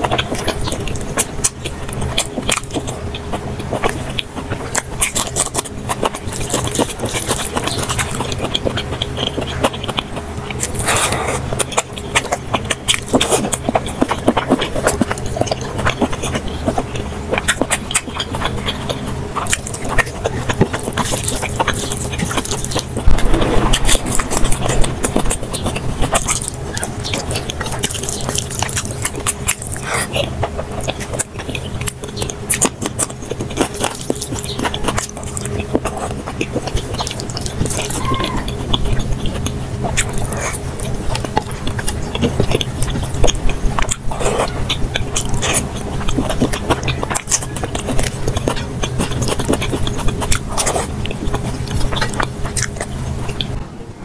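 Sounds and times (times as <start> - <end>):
chewing and lip-smacking: 0.0 - 54.0
steady low hum: 0.0 - 54.0.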